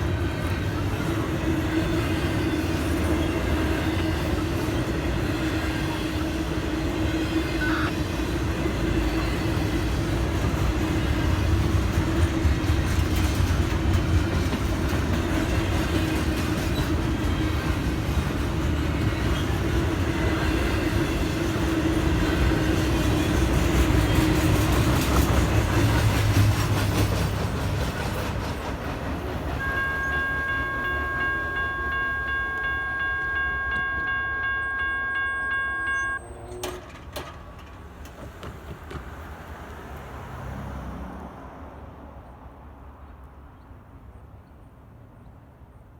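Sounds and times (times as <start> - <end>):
rail clatter: 0.0 - 40.6
train rumbling past: 0.0 - 44.4
high electronic crossing bell: 29.6 - 36.2.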